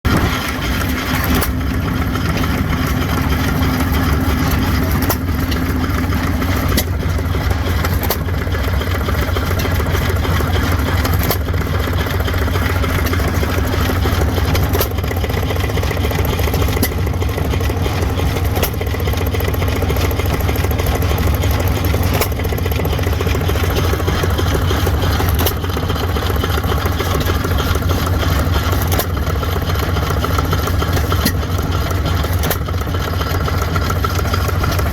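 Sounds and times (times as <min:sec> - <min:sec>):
engine low rumble: 0:00.0 - 0:34.9
engine sharp cracks: 0:00.0 - 0:34.9.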